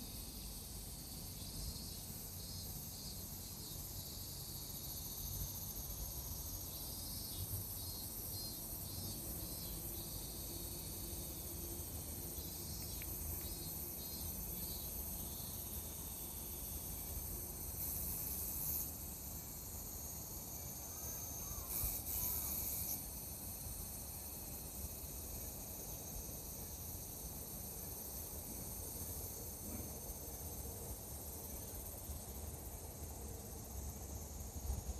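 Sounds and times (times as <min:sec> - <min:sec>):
insects chirping: 0:00.0 - 0:34.9
insect buzzing bursts: 0:21.3 - 0:23.9.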